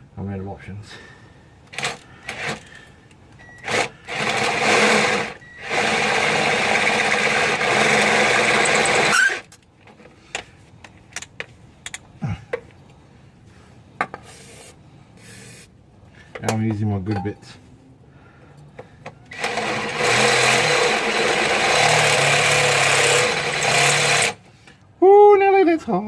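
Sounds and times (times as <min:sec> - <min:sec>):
electric drill drilling into metal: 0:03.6 - 0:09.4, 0:19.3 - 0:24.4
tool handling knocks and clicks: 0:09.4 - 0:12.9, 0:16.2 - 0:17.4.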